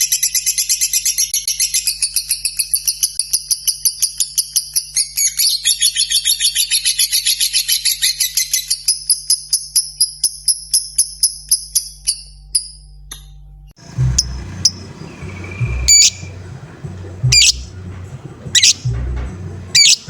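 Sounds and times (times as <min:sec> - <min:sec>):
bird chattering trill: 0:13.8 - 0:20.0.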